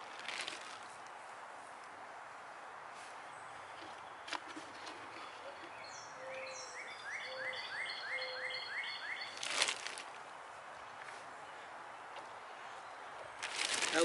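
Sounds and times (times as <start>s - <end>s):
plastic bag crinkling: 0.0s - 0.9s, 9.4s - 10.2s, 13.4s - 14.0s
songbird singing: 3.1s - 14.0s.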